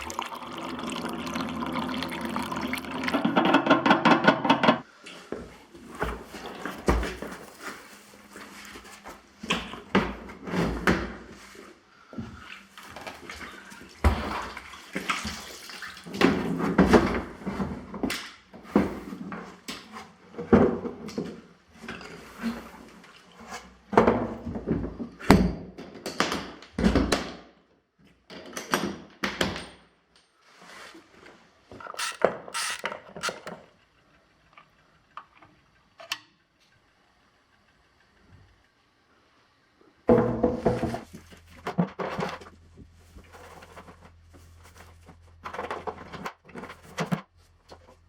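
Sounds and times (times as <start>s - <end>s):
knocks and thuds of handling: 40.1s - 44.0s.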